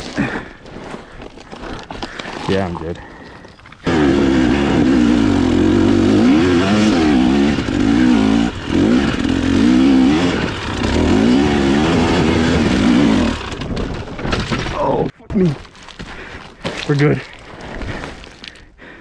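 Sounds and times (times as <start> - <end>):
dirt bike engine revving: 3.8 - 13.8.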